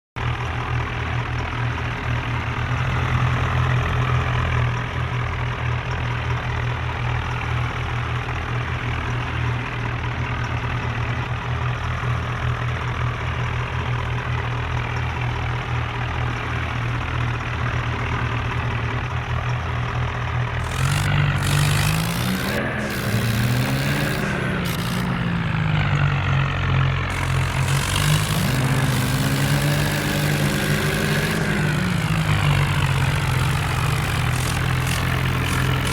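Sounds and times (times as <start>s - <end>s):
diesel tractor engine running: 20.2s - 35.9s.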